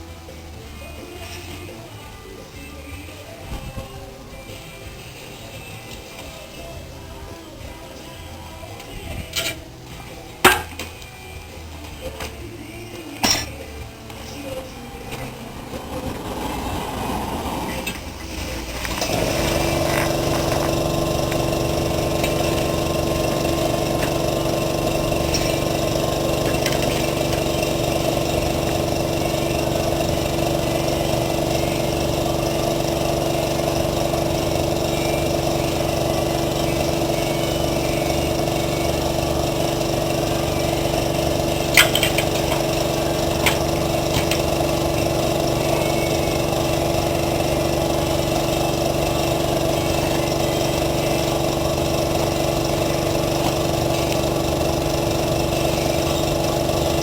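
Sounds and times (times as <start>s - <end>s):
motor running steadily: 0.0s - 57.0s
sharp metallic clicks: 17.7s - 57.0s.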